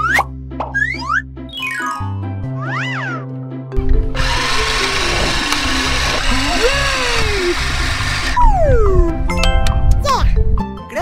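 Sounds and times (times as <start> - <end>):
background music: 0.0 - 11.0
electric drill running: 3.8 - 8.4
rising and falling sliding tone: 3.8 - 9.2.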